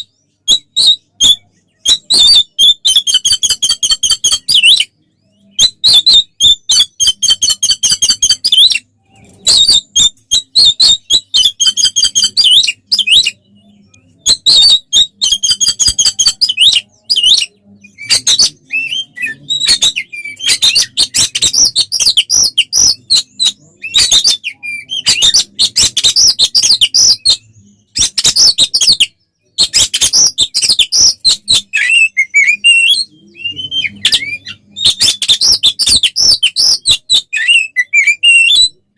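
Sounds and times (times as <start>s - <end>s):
bird singing harsh notes and whistles: 0.0s - 38.9s.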